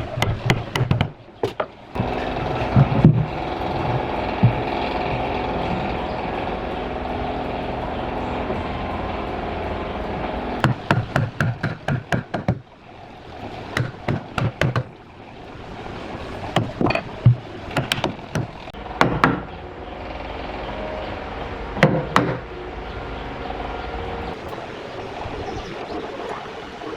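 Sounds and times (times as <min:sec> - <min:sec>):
sharp knocks on wood: 0:00.2 - 0:01.7, 0:10.6 - 0:12.6, 0:13.8 - 0:14.9, 0:16.6 - 0:19.5, 0:21.8 - 0:22.4
power tool running: 0:01.9 - 0:11.0.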